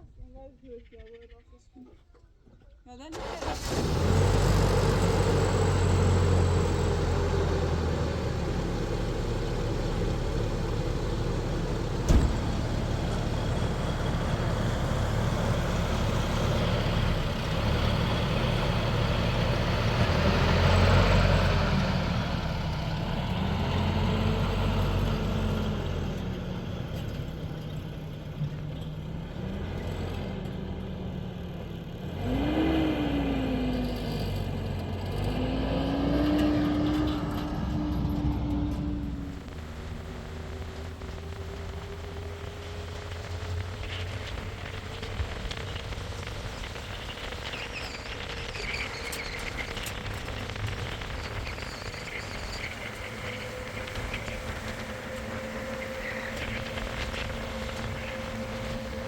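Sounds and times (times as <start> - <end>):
vehicle engine running: 3.2 - 59.0.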